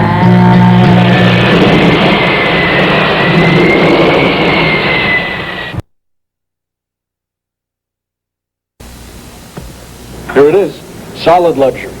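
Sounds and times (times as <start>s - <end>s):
high turbine whine: 0.0s - 5.8s, 8.8s - 12.0s
jet engine roaring: 0.0s - 5.8s.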